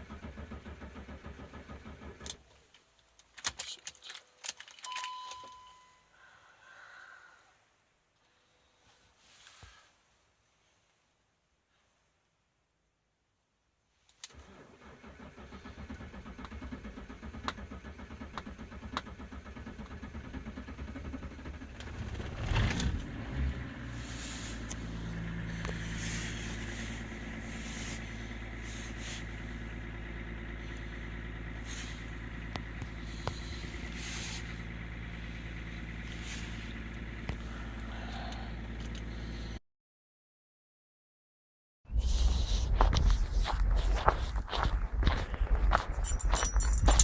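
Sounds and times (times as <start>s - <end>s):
diesel engine idling: 0.0s - 2.3s, 14.4s - 39.6s, 42.0s - 47.0s
starter motor cranking: 0.0s - 2.4s, 14.3s - 37.1s.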